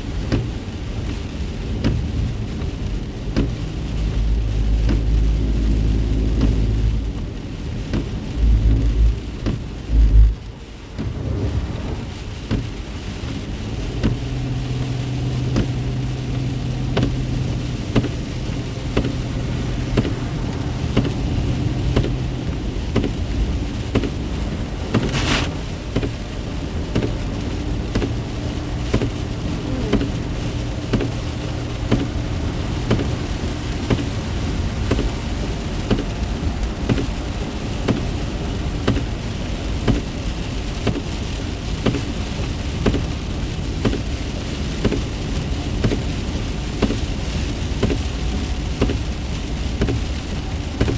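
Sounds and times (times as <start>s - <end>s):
heavy rain on car roof: 0.0s - 50.9s
road and engine hum: 0.0s - 50.9s
heavy low thumps: 8.2s - 12.8s.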